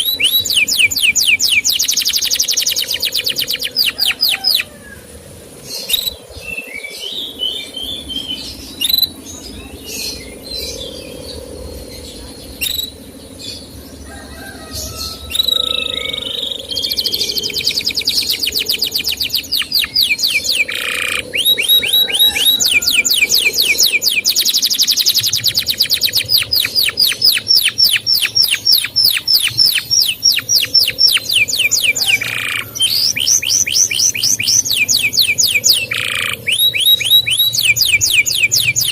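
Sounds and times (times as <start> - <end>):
canary chirps: 0.0 - 4.7, 5.8 - 38.9
canary fast trill: 0.0 - 5.1, 7.9 - 38.9.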